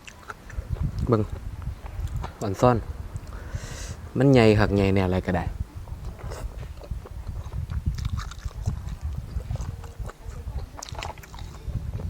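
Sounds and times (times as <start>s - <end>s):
person chewing food: 0.0s - 2.2s, 6.0s - 12.0s
soft mouth smacks and clicks: 6.2s - 10.2s.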